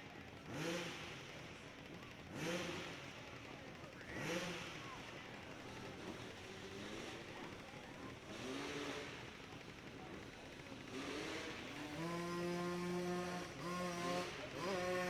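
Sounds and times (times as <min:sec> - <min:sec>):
dirt bike engine revving: 0:00.4 - 0:01.3, 0:02.3 - 0:03.2, 0:03.9 - 0:07.2, 0:08.3 - 0:09.4, 0:10.8 - 0:15.0.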